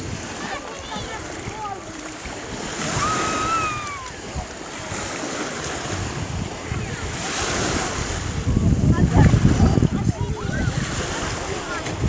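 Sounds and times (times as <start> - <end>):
sea surf breaking: 0.0 - 12.0
wind buffeting microphone: 0.0 - 12.0.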